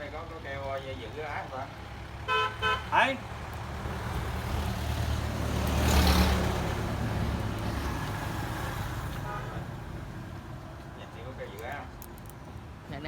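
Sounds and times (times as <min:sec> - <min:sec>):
vehicle engine rumble passing: 0:01.6 - 0:11.0.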